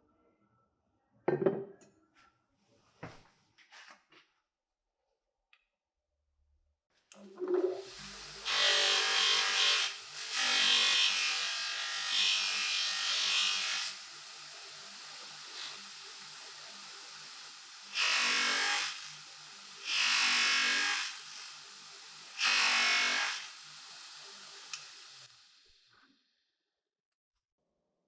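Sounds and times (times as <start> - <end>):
small power tool cutting: 7.8 - 25.9.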